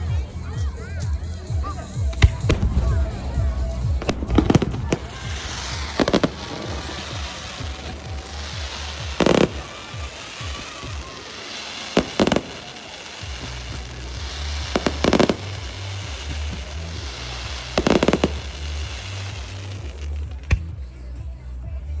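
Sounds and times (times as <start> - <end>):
music with heavy bass: 0.0 - 11.3, 12.0 - 22.0
fireworks banging: 0.0 - 20.8
fireworks crackle: 0.0 - 21.1.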